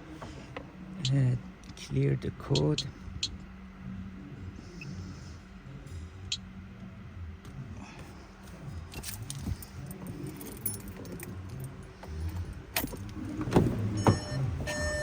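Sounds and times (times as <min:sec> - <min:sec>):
car keys jangling: 0:08.4 - 0:15.0
key clicking in ignition: 0:08.9 - 0:15.0.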